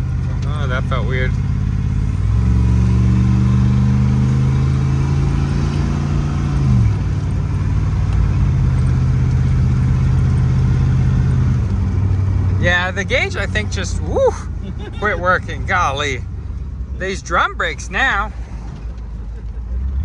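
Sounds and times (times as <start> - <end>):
pickup engine accelerating: 0.0 - 20.0.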